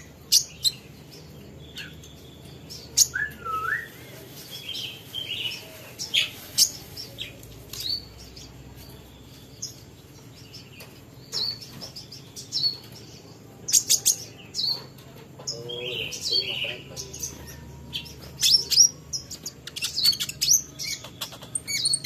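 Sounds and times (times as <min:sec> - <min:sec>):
sunbird chirping: 0:15.5 - 0:22.0.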